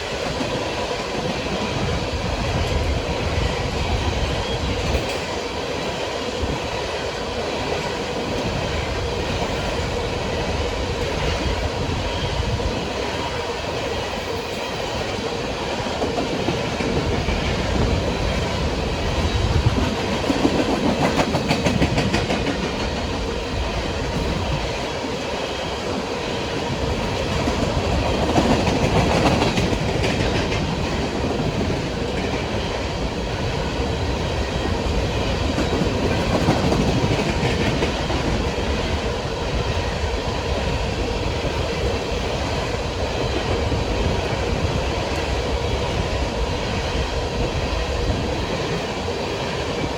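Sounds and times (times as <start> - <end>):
train wheels rumbling on rail: 0.0 - 49.9
wheels clicking over rail joints: 15.8 - 23.4, 26.6 - 32.8.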